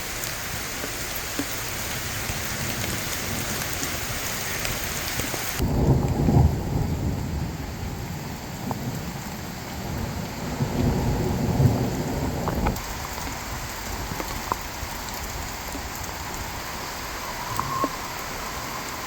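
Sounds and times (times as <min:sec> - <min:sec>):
rain drop ticks: 0:00.0 - 0:06.5, 0:08.6 - 0:09.4, 0:10.2 - 0:19.0
steady rain falling: 0:00.0 - 0:19.0
low rumble of thunder: 0:05.6 - 0:19.0.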